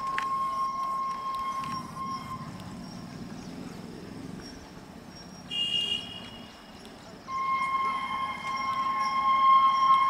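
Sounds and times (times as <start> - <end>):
electric train rumble: 0.0 - 5.4, 7.3 - 10.0
high train horn toot: 5.5 - 6.5.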